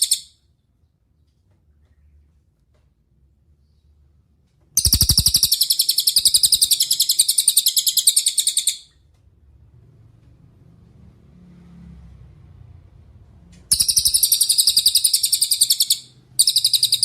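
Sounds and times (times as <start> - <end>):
songbird trilling: 4.8 - 8.9, 13.7 - 17.0.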